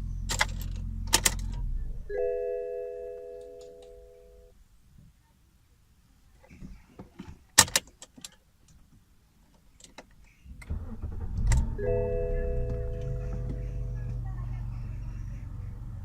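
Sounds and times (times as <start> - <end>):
car engine starting and idling: 0.0 - 4.5, 10.4 - 16.0
electronic tones: 11.7 - 13.6.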